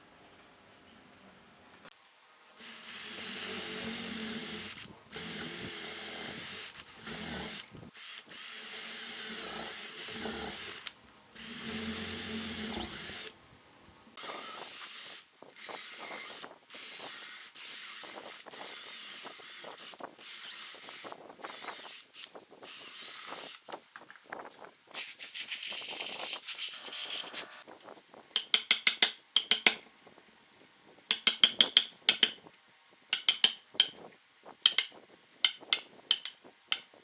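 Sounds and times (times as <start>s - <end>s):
electric power drill running: 2.6s - 13.3s, 14.2s - 23.6s.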